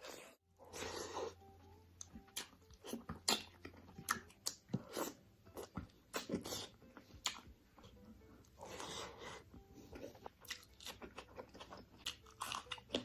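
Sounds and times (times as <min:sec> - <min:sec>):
crisp bites and chewing: 0:10.2 - 0:13.0.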